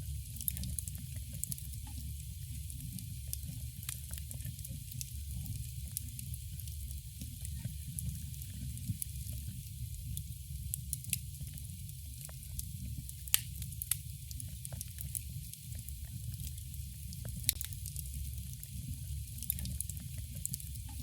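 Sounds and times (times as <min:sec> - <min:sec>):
campfire crackling: 0:00.2 - 0:21.0
loud pops from fire: 0:13.3 - 0:14.0.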